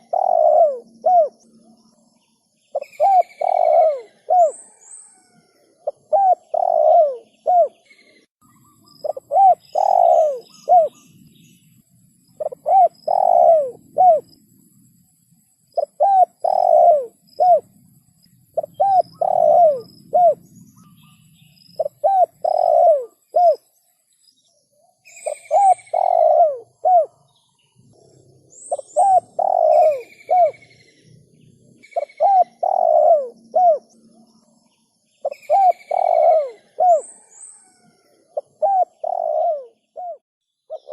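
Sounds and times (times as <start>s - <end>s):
dove cooing: 0.0s - 1.4s, 2.7s - 8.0s, 9.0s - 11.0s, 12.4s - 14.4s, 15.8s - 17.8s, 18.5s - 21.0s, 21.8s - 23.7s, 25.2s - 27.3s, 27.9s - 34.1s, 35.2s - 40.9s
small birds chirping faintly: 0.0s - 40.9s.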